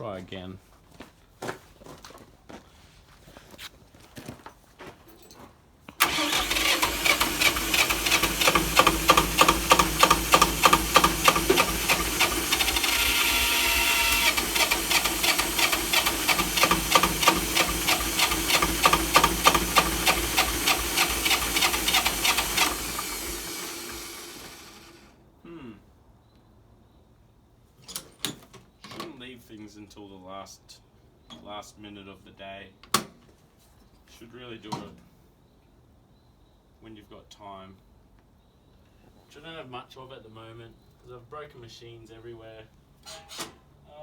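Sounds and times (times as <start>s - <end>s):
starter winding down: 6.0s - 25.1s
electric starter cranking diesel engine: 6.0s - 25.2s.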